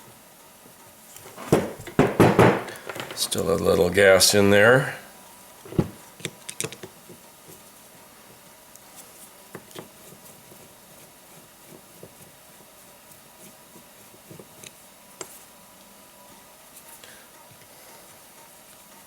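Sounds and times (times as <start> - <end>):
faint steady hum: 0.0 - 19.0
clicks and taps of tools: 2.7 - 3.2, 6.2 - 7.0.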